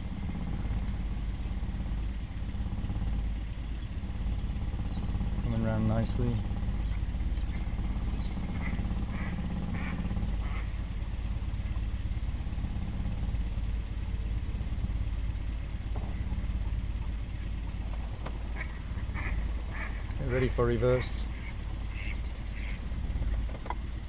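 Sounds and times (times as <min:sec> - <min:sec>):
boat engine idling: 0:00.0 - 0:24.0
duck quacking: 0:08.6 - 0:10.7, 0:18.5 - 0:20.1, 0:20.9 - 0:22.8.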